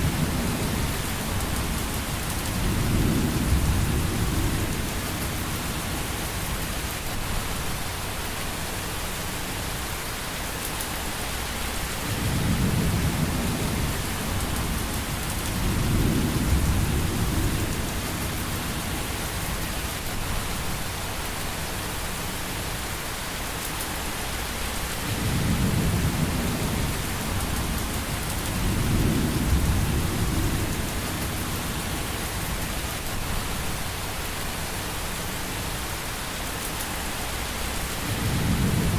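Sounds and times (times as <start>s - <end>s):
rain hiss: 0.0s - 38.9s
rolling thunder: 12.1s - 19.6s, 25.0s - 32.8s, 38.0s - 38.9s.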